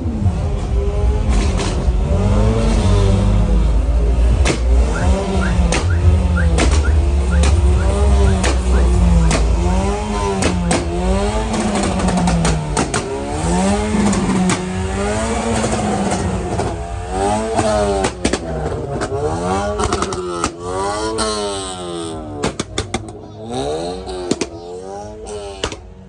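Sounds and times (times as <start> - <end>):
motorcycle engine revving: 0.0 - 20.2
sharp exhaust cracks: 4.4 - 13.2.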